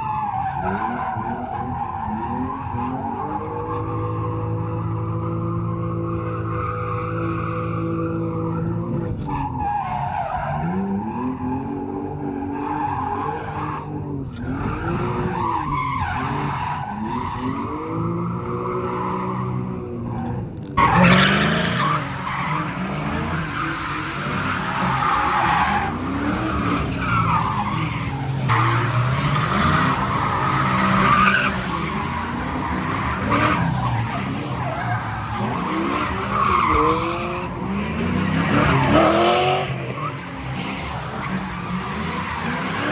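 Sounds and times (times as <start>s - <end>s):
car engines revving: 0.0s - 42.9s
tyres squealing: 20.2s - 42.9s.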